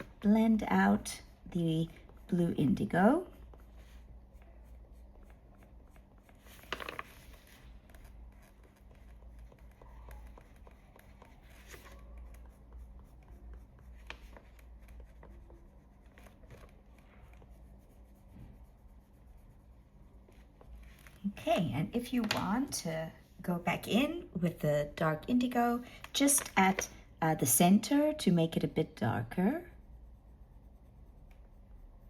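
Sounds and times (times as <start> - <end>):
pencil scratching on paper: 0.0 - 21.0, 27.6 - 32.0
low steady hum: 0.0 - 32.0.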